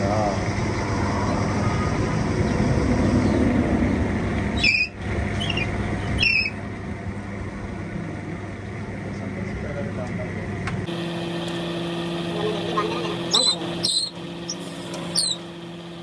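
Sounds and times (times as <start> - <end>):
engine humming: 0.0 - 16.0
short high squeaks: 4.6 - 6.6, 13.3 - 15.5.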